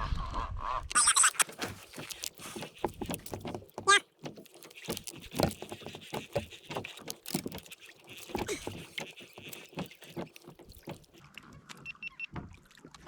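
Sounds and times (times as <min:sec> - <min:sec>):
small clicks and knocks: 0:00.9 - 0:11.2
light water patter: 0:01.0 - 0:11.5.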